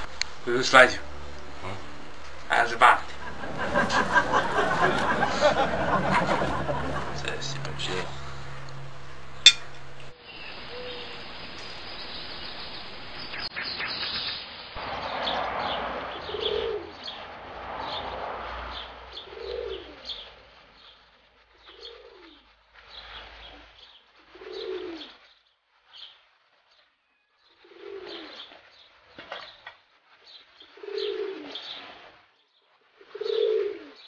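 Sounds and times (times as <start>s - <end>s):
pigeons cooing: 2.5s - 13.5s, 16.1s - 17.3s, 18.7s - 20.9s, 21.5s - 25.2s, 27.6s - 28.6s, 30.6s - 32.0s, 33.0s - 34.0s
small birds chirping: 9.4s - 34.0s.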